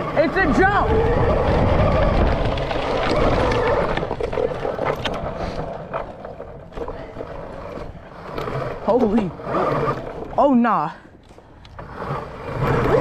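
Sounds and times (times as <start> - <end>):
wind rumble: 0.0 - 10.4
electric motor whine: 11.6 - 13.0.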